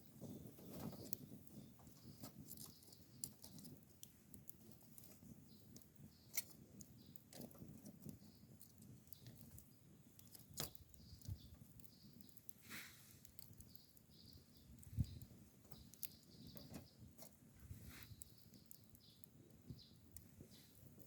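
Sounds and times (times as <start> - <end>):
campfire crackling and popping: 0.0 - 21.0.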